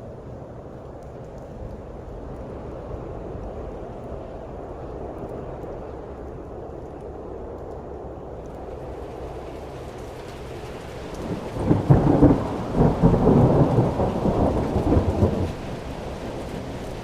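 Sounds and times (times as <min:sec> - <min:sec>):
steady rain: 0:00.0 - 0:17.0
rolling thunder: 0:08.6 - 0:17.0.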